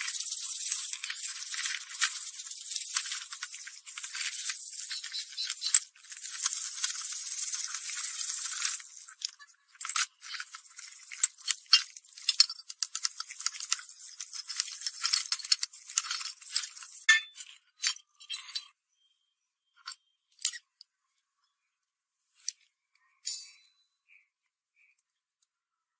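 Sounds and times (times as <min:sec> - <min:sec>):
scratching and clicking on hard surface: 0:00.0 - 0:18.7.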